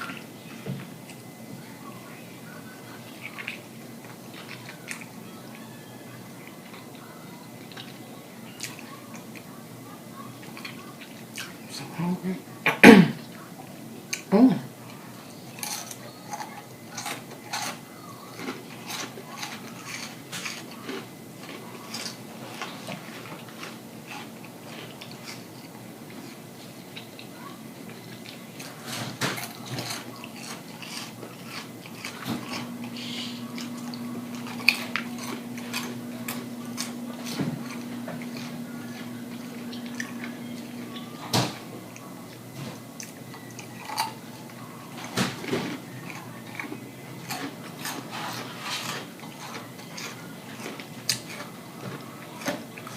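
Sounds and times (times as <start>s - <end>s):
person chewing crunchy food: 2.5s - 5.6s, 14.1s - 52.9s
chewing mouth sounds: 27.9s - 41.1s, 46.0s - 52.9s.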